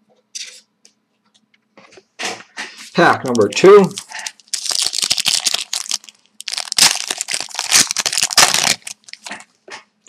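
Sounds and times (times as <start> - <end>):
wrapper tearing and crinkling: 3.8 - 9.5.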